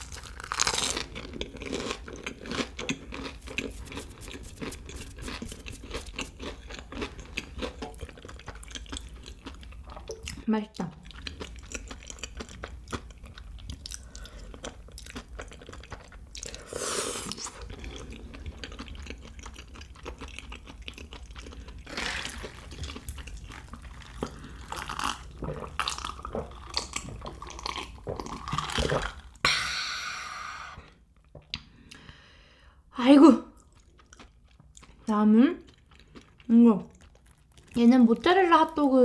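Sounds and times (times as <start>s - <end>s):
noodles slurped and chewed: 0.0s - 10.4s, 11.0s - 29.4s, 33.6s - 38.9s.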